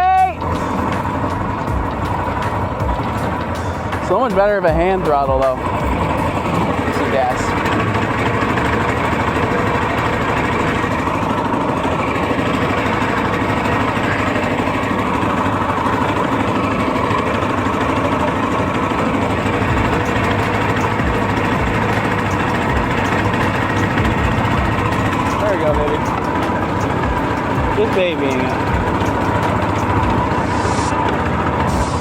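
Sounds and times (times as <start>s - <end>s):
boat motor running: 0.0s - 32.0s
low thumps: 0.5s - 4.1s, 20.9s - 27.9s, 28.5s - 32.0s.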